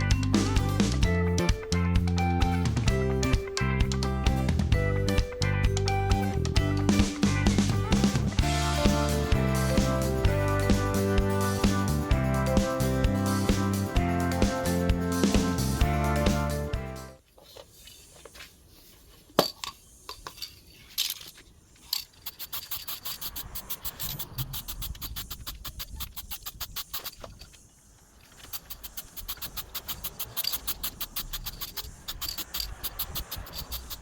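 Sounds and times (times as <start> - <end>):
rapid metallic clicking: 21.9 - 27.6, 28.2 - 34.0.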